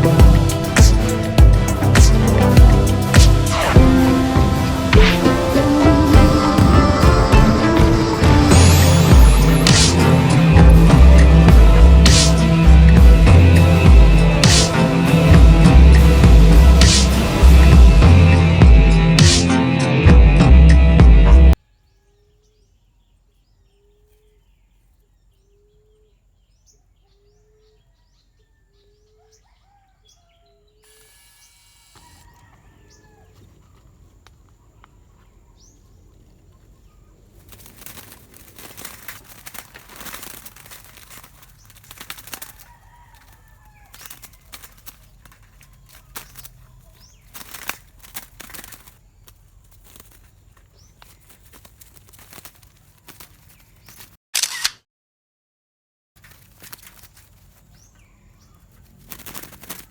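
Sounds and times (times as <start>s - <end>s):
wings flapping and fluttering: 0.0s - 18.5s, 36.2s - 54.2s, 56.2s - 59.9s.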